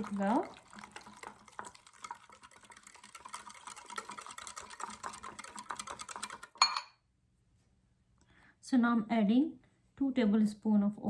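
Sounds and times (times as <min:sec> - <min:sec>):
utensil stirring in a cup: 0:00.0 - 0:06.9.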